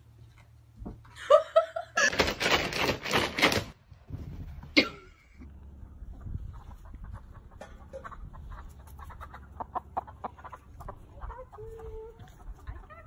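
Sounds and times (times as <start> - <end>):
steady low rumble: 4.0 - 9.7
chicken clucking: 5.4 - 13.0.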